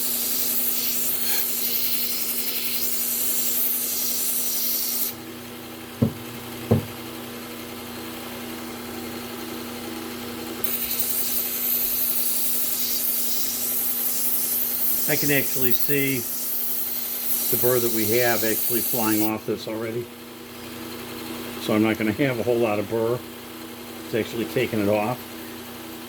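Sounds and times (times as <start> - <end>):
belt sharpener motor hum: 0.0 - 5.2, 10.6 - 19.4
knife hissing on abrasive belt: 0.0 - 5.2, 10.6 - 19.4
sharp knocks: 6.0 - 7.0.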